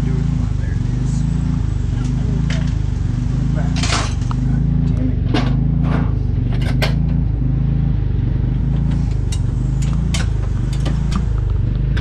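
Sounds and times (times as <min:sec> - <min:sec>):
motor droning: 0:00.0 - 0:12.0
sharp clicks and knocks: 0:05.3 - 0:07.2, 0:08.8 - 0:12.0.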